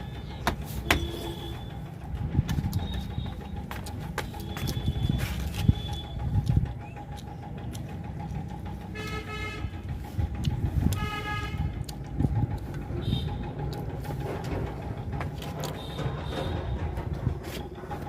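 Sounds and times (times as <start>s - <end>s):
vehicle horn honks: 0.8s - 1.7s, 9.0s - 9.8s, 11.0s - 11.7s, 13.0s - 13.4s
low rumble: 1.3s - 18.0s.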